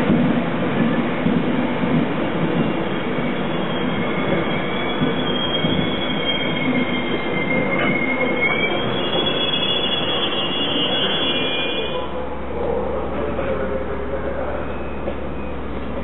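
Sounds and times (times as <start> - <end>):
train rumbling: 0.0 - 16.0
high-pitched wheel squeal: 2.7 - 12.1.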